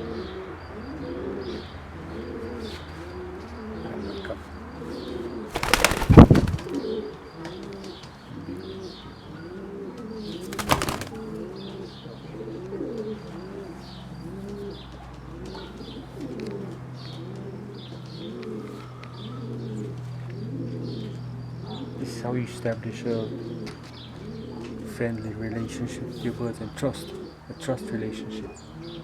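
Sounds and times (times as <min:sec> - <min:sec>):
pigeons cooing: 0:00.0 - 0:29.0
wings flapping: 0:05.5 - 0:06.8, 0:10.4 - 0:11.4.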